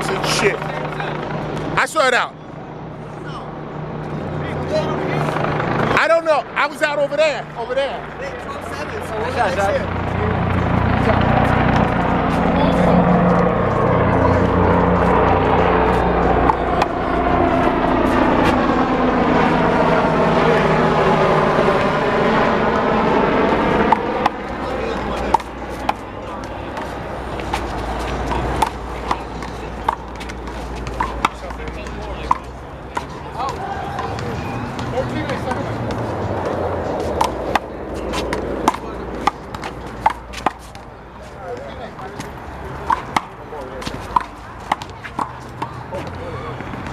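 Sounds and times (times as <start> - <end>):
low-flying aircraft engine: 2.4 - 6.6, 7.4 - 30.8, 35.7 - 39.9.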